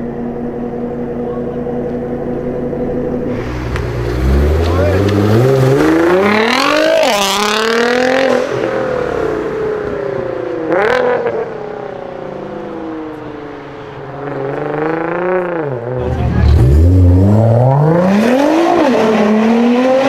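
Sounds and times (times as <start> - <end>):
car engine revving hard: 3.3 - 11.6, 14.2 - 20.0.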